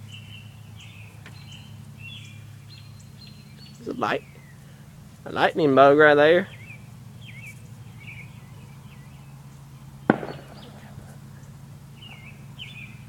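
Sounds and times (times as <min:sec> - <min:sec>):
bird chirping: 0:00.0 - 0:13.0
steady low hum: 0:00.0 - 0:13.0.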